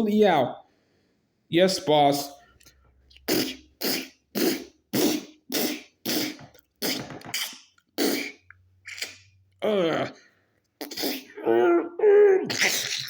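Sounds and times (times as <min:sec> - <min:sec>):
man making mouth sound effects: 0:03.1 - 0:10.2, 0:10.8 - 0:13.0.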